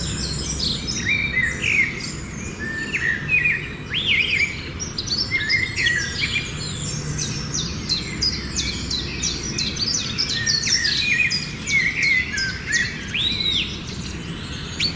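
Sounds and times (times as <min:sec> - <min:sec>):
steady low hum: 0:00.0 - 0:03.9
small birds chirping: 0:00.0 - 0:14.9.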